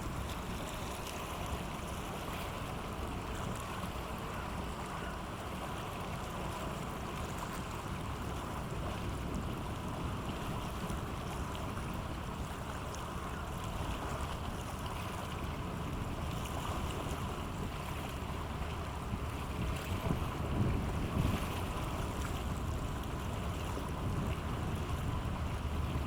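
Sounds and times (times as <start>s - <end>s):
light wind: 0.0s - 26.0s
ship engine rumbling: 17.5s - 26.0s.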